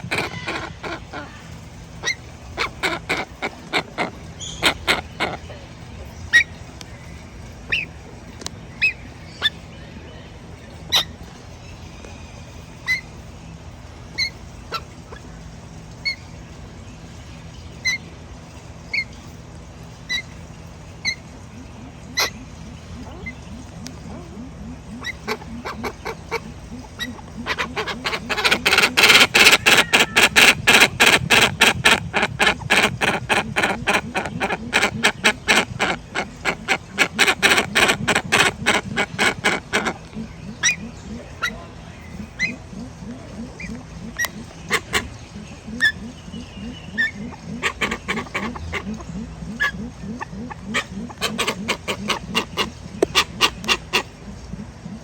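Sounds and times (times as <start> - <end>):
birds sharp clucking calls: 0.0 - 55.0
deep rhythmic low notes: 20.5 - 55.0.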